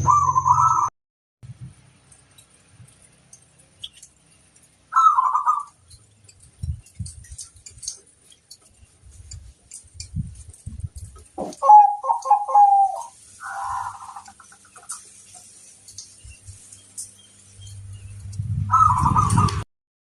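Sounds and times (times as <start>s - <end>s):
dove cooing: 0.0s - 0.9s, 4.9s - 5.8s, 11.4s - 14.8s, 18.6s - 19.6s.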